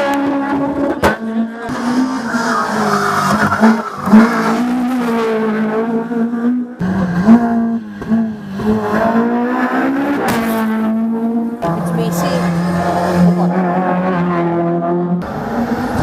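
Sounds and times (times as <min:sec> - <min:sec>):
race car engines at full throttle: 0:00.0 - 0:16.0.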